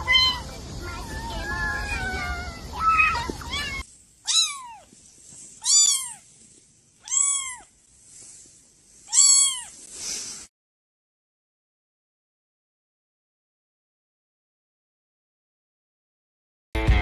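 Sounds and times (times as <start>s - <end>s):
cat meowing: 0.0s - 4.9s, 5.6s - 6.3s, 7.0s - 7.7s, 9.1s - 9.8s.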